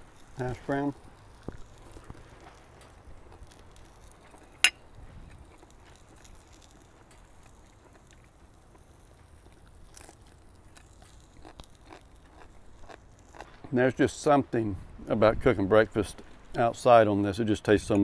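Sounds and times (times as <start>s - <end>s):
person chewing: 1.0s - 13.7s.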